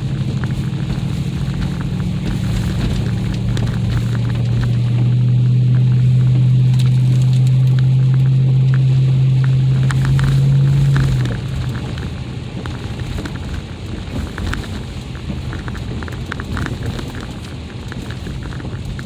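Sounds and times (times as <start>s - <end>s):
steady low drone: 0.0s - 13.7s
tyres crunching on ice: 0.0s - 19.0s.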